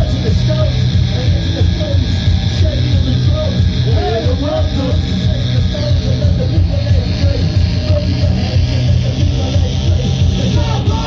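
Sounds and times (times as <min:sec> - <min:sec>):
punk band playing live: 0:00.0 - 0:11.0.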